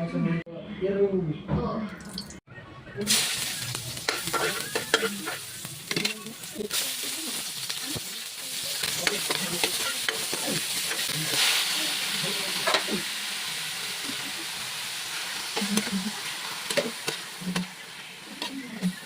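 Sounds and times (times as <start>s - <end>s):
food sizzling in hot oil: 3.0s - 19.0s
utensil scraping against a pan: 4.0s - 6.3s.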